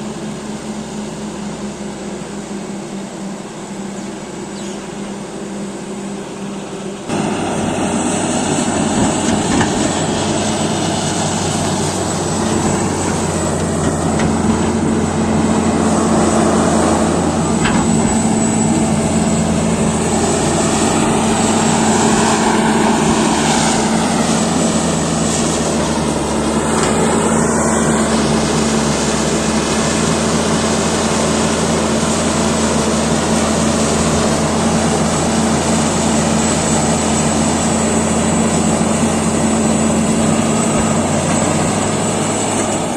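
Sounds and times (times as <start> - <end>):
bulldozer diesel engine drone: 0.0 - 42.9
higher rising and falling tone: 10.3 - 29.3.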